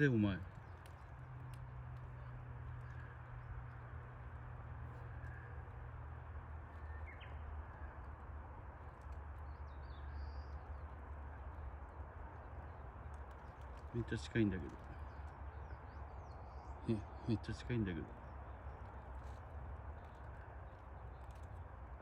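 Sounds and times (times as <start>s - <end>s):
low outdoor rumble: 0.0s - 22.0s
faint bird chirps: 6.7s - 8.0s.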